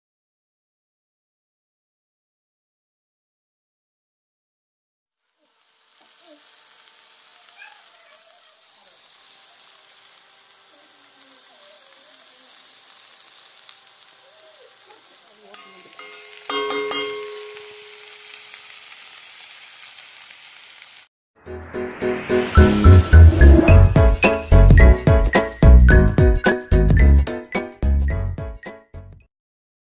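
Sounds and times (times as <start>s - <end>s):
food sizzling in oil: 5.2s - 21.1s, 21.9s - 25.6s
spatula clattering against pan: 15.5s - 18.0s
loud music: 21.4s - 27.7s.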